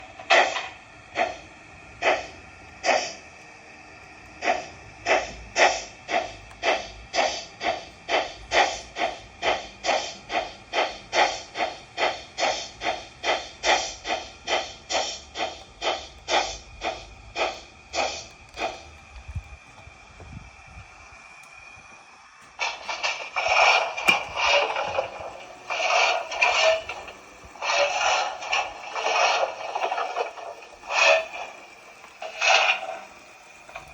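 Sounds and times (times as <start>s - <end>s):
model steam locomotive chuffing: 0.0s - 33.9s.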